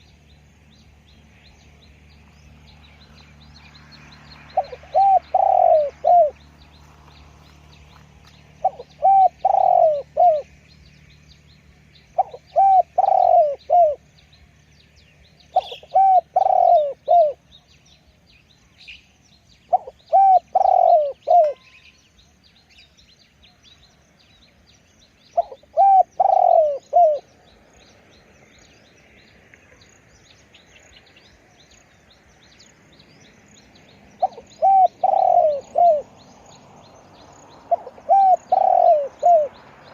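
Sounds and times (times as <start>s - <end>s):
small birds chirping: 0.0s - 39.9s
dove cooing: 4.6s - 6.4s, 8.6s - 10.5s, 12.2s - 14.0s, 15.5s - 17.4s, 19.7s - 21.7s, 25.4s - 27.2s, 34.2s - 36.1s, 37.7s - 39.6s.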